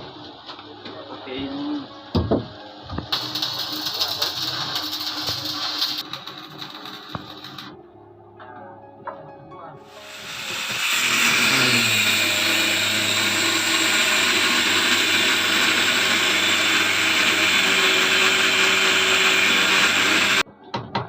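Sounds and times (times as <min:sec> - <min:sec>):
electric power tool whirring: 0:03.2 - 0:07.7, 0:09.9 - 0:20.4.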